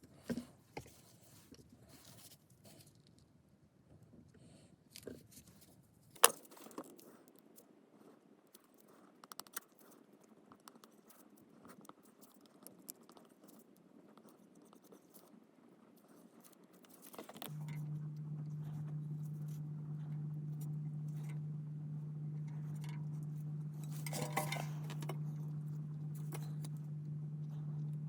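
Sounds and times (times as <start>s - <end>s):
steady low hum: 17.4s - 28.0s.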